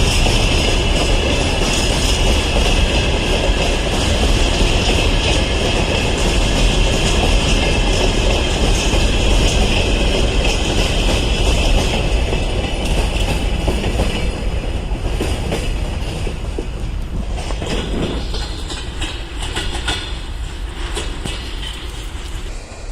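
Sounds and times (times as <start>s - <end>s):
train wheels rumbling on rails: 0.0s - 22.9s.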